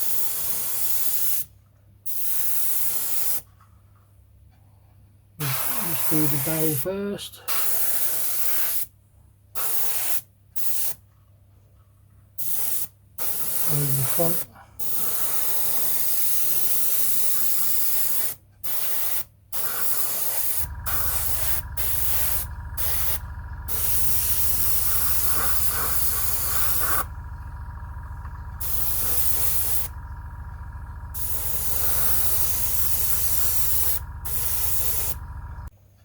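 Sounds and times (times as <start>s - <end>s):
airbrush hissing: 5.4s - 6.8s, 19.6s - 35.7s
low hum: 20.6s - 35.7s.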